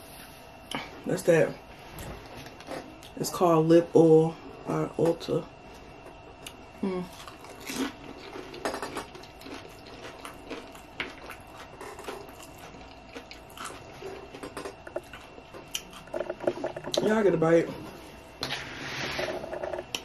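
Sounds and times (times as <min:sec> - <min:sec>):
person chewing crunchy chips: 0:06.4 - 0:17.2.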